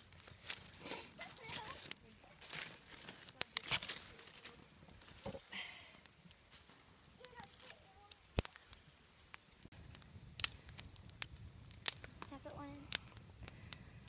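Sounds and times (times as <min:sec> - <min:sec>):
twigs snapping in campfire: 0:00.0 - 0:14.0
faint voices: 0:00.3 - 0:08.9.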